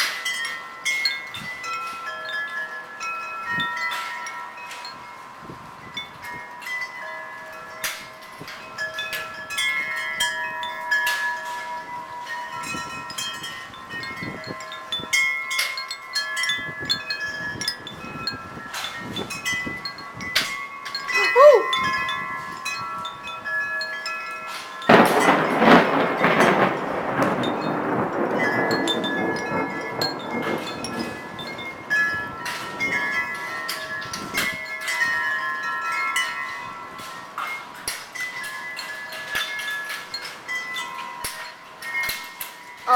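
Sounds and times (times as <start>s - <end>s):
wind chimes ringing: 0.0s - 42.9s.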